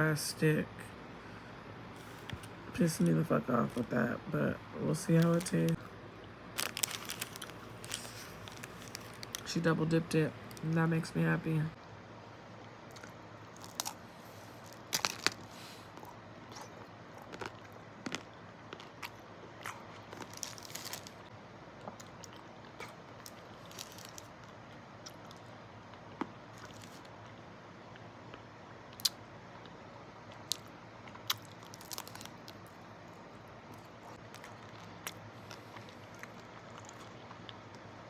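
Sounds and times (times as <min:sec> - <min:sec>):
crisp crunches of biting: 0:06.6 - 0:09.5, 0:12.9 - 0:21.3, 0:21.9 - 0:24.4, 0:26.5 - 0:27.1, 0:30.4 - 0:32.8, 0:33.7 - 0:37.3.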